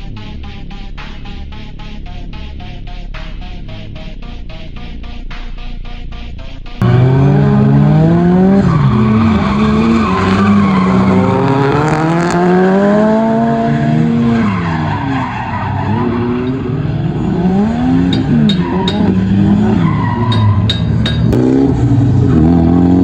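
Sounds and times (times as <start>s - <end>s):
car engine revving hard: 6.8s - 14.7s, 21.3s - 23.0s
tyres squealing: 18.1s - 21.3s.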